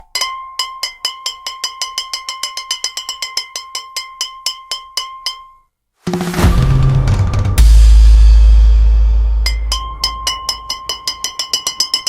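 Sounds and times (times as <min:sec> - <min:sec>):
pitched percussion note repeating: 0:06.0 - 0:11.8.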